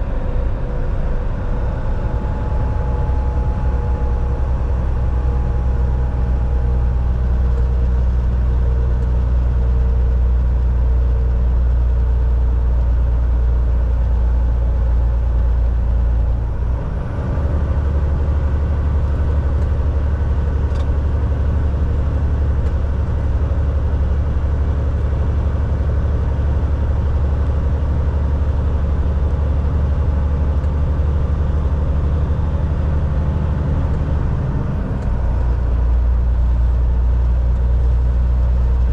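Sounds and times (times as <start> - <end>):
truck engine drone: 0.0 - 38.9
road noise: 14.0 - 38.9.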